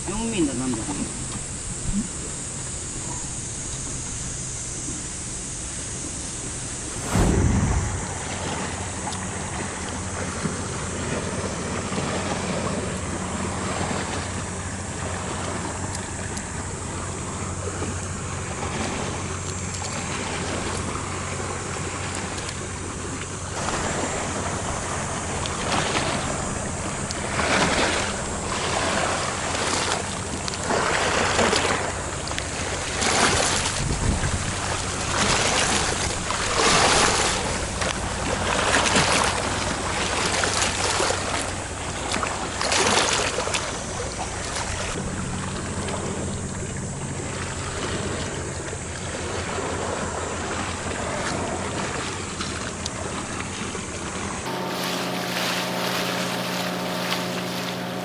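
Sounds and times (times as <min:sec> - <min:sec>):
faint low hum: 0:06.8 - 0:08.9, 0:54.5 - 0:58.0
sea waves washing ashore: 0:54.5 - 0:58.0.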